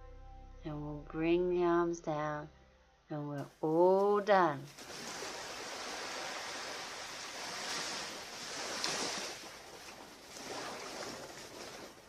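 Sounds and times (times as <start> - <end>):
surf washing onto beach: 4.8 - 12.0.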